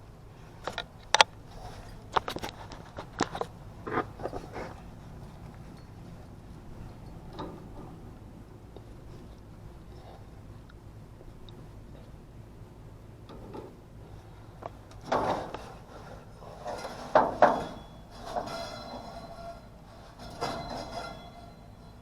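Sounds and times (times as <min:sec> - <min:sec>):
low steady hum: 0:00.0 - 0:22.0
metal clanking and rattling: 0:00.6 - 0:08.2, 0:13.3 - 0:22.0.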